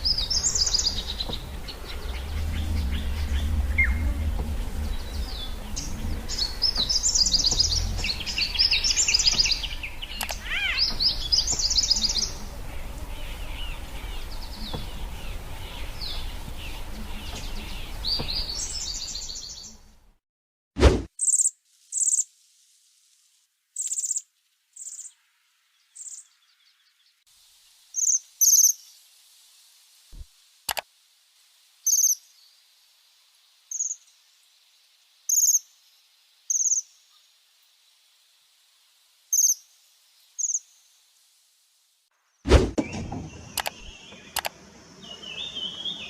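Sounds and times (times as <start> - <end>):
small bird chirping: 0.0 - 19.8, 21.2 - 22.3, 23.8 - 25.2, 25.8 - 27.0, 27.9 - 29.0, 31.8 - 32.6, 33.7 - 34.4, 35.2 - 35.9, 36.5 - 37.4, 39.3 - 41.0, 42.9 - 46.0
sharp click: 10.2 - 11.6, 43.6 - 44.6.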